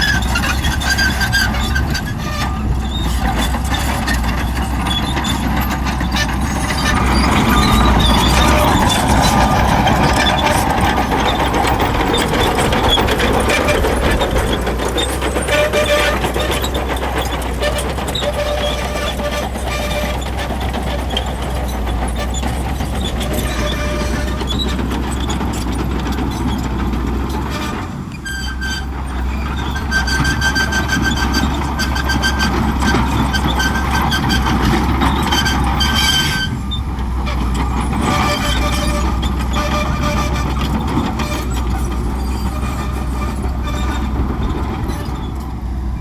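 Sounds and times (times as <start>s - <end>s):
bulldozer diesel engine under load: 0.0s - 46.0s
high-pitched squeal: 4.0s - 24.8s.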